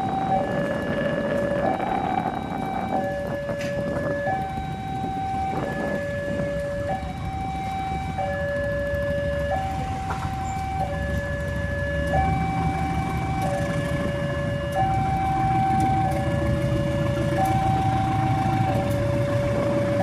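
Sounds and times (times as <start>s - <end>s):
low rumble: 0.0s - 8.1s
level crossing two-tone alarm: 0.0s - 20.0s.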